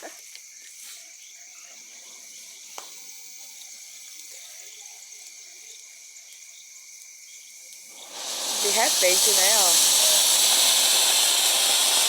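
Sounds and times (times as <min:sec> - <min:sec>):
insects droning: 0:00.0 - 0:12.0
firework crackle: 0:07.7 - 0:12.0
firework fountain hissing: 0:07.8 - 0:12.0.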